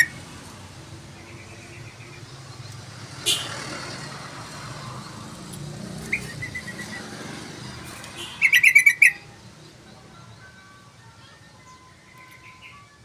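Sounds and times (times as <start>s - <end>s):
bird calling: 6.0s - 7.2s, 8.2s - 9.3s.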